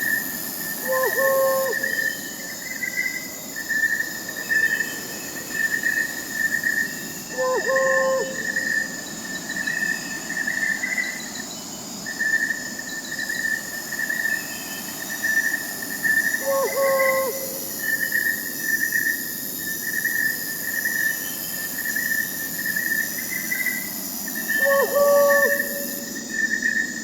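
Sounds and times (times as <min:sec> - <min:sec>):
crickets chirping: 0:00.0 - 0:27.0
distant owl hoot: 0:00.8 - 0:02.2, 0:07.3 - 0:08.8, 0:16.4 - 0:17.8, 0:24.5 - 0:26.1.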